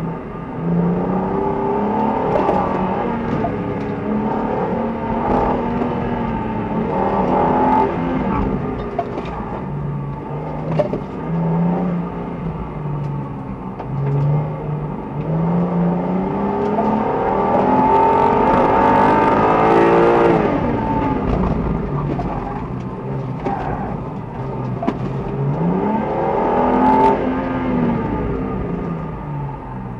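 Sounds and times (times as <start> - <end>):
car engine revving from cabin: 0.0 - 29.9.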